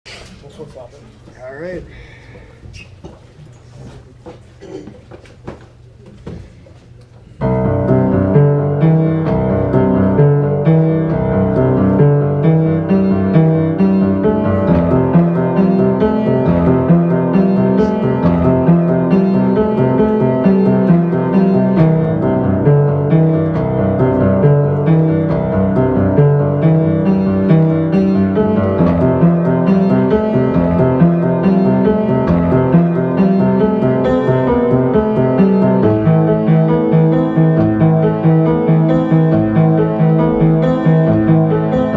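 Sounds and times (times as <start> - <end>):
soft clicks of room noise: 4.9 - 7.3
solo piano: 7.4 - 41.9.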